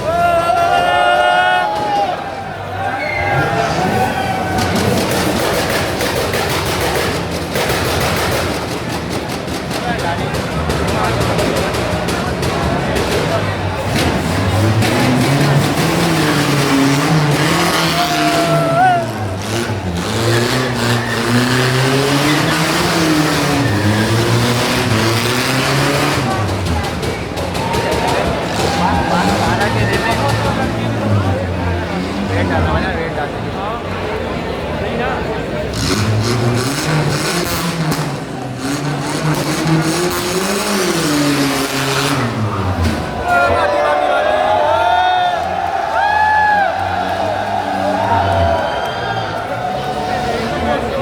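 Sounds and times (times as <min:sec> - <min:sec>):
car engine revving: 0:01.6 - 0:51.0
sharp cracks: 0:04.5 - 0:13.4.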